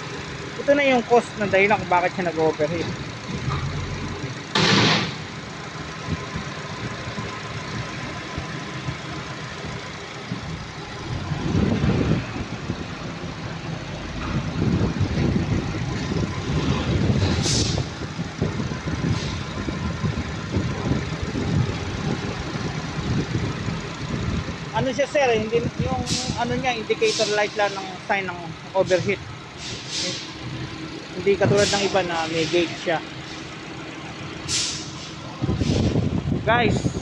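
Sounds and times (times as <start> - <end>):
car engine idling: 0.0 - 37.0
short hiss: 34.5 - 35.8.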